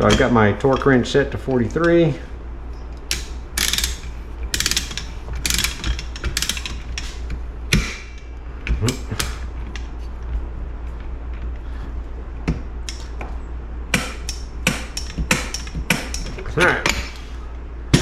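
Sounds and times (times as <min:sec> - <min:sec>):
torque wrench ratchet clicking: 0:03.1 - 0:07.2
sharp metal knocks: 0:03.1 - 0:09.4, 0:13.9 - 0:17.2.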